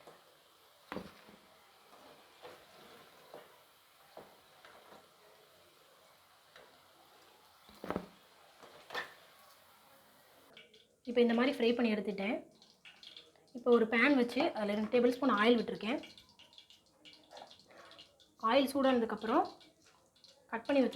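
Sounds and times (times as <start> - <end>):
utensil clicking against a pan: 10.5 - 11.4, 12.5 - 20.9.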